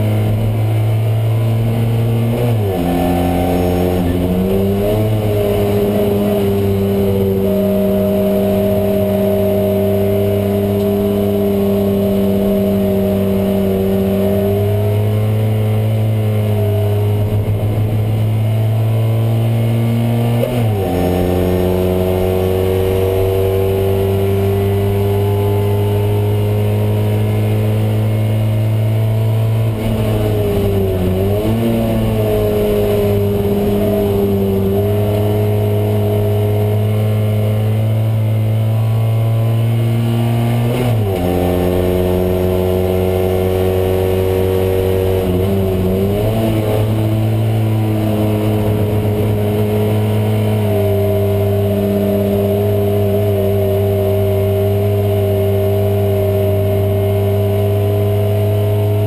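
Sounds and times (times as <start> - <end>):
car engine running hard: 0.0 - 59.0.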